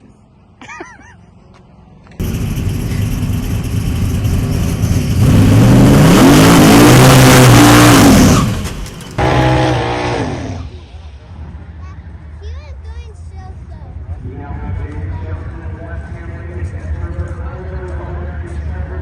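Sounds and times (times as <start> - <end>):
car accelerating hard: 2.2 - 10.9.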